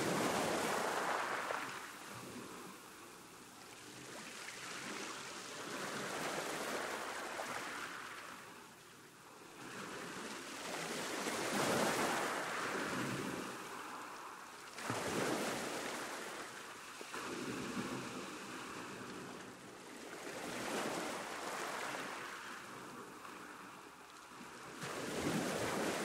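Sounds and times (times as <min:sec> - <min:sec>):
sea waves breaking on shore: 0:00.0 - 0:26.0.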